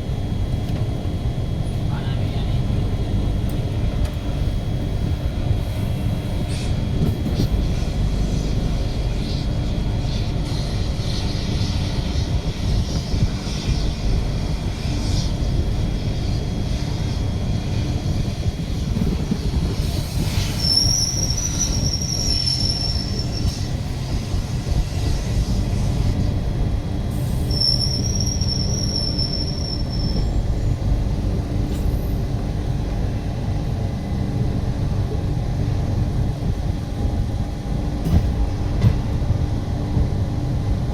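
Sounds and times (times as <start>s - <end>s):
train rumbling on rails: 0.0s - 40.9s
train wheels squealing: 19.7s - 23.9s, 27.1s - 30.9s.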